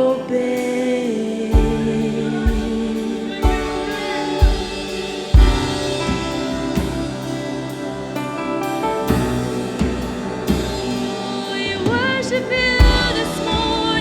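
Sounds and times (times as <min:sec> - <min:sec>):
worship band held chords: 0:00.0 - 0:14.0
deep drum hits: 0:12.8 - 0:14.0.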